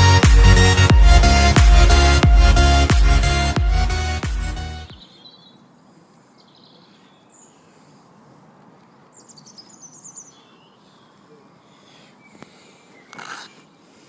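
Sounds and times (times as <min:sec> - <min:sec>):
bird chirps: 0:04.7 - 0:05.7, 0:09.1 - 0:13.6.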